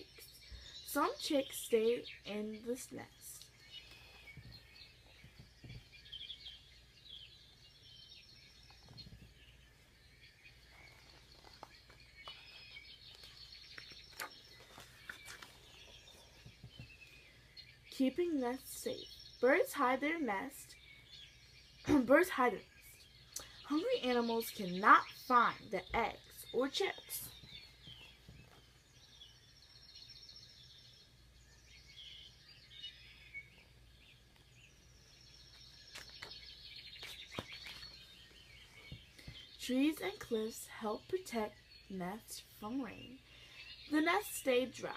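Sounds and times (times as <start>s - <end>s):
faint songbirds chirping: 0.0s - 44.9s.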